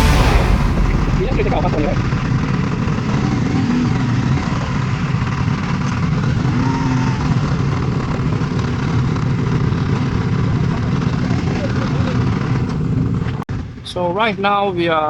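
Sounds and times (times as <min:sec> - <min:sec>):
wind and road rushing: 0:00.0 - 0:06.6
motorcycle engine running: 0:00.0 - 0:13.4.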